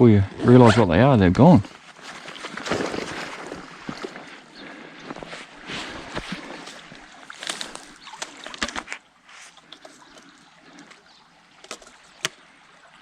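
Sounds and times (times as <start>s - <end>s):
footsteps through grass and brush: 1.7s - 4.4s, 5.0s - 8.2s
twigs snapping: 6.2s - 9.0s.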